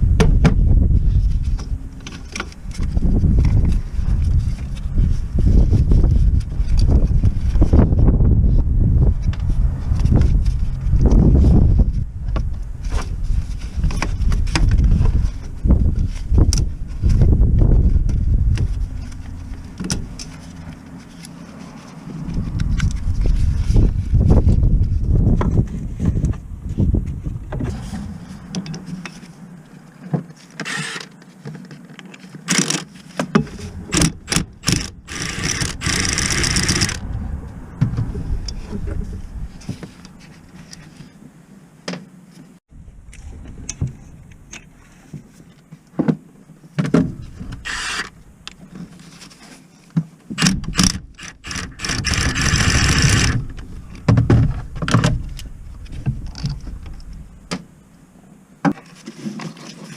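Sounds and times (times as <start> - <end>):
noisy mechanical bursts: 30.6 - 31.1, 33.6 - 37.0, 47.6 - 48.2, 50.4 - 53.6.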